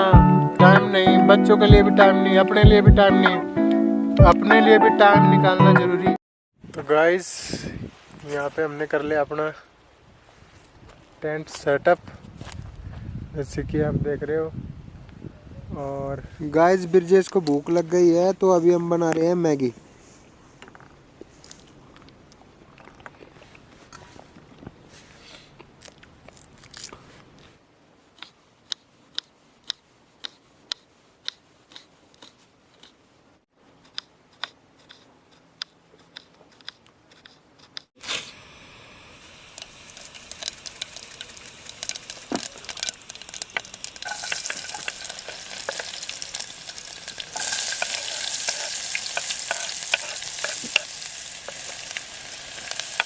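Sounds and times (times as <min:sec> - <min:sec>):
pan sizzling on a stove: 0:38.0 - 0:53.0.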